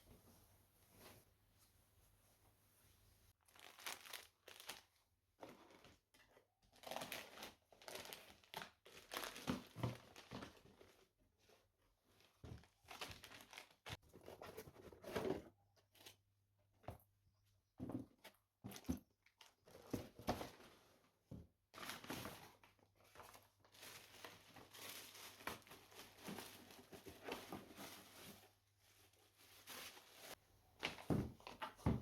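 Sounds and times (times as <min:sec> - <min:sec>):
packaging crinkling and rustling: 0:03.4 - 0:11.1, 0:21.8 - 0:28.5.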